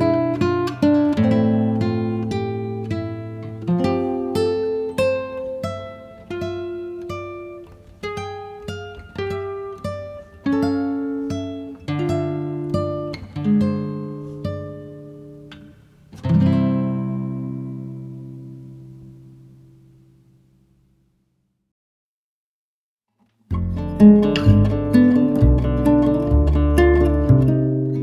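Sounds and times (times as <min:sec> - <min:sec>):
acoustic guitar picking notes: 0:00.0 - 0:20.2, 0:23.5 - 0:28.0
strummed guitar chord: 0:23.5 - 0:28.0.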